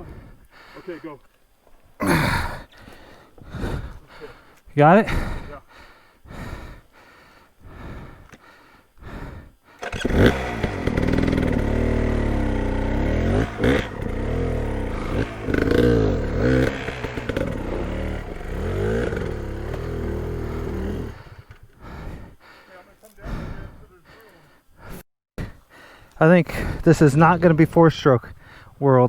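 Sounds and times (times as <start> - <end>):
dirt bike engine revving: 9.8 - 22.4.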